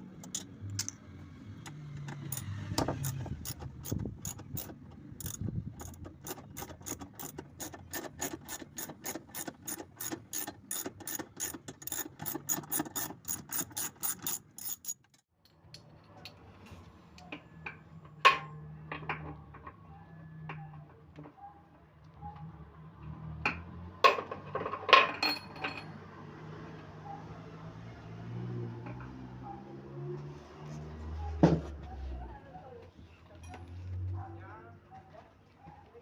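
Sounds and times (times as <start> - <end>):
ratchet wrench clicking: 2.2 - 15.2.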